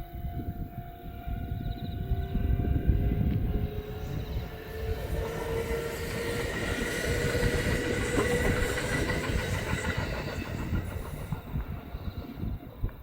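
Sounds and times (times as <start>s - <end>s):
electric train whine: 0.0s - 13.0s
wheels clacking over rail joints: 4.6s - 13.0s.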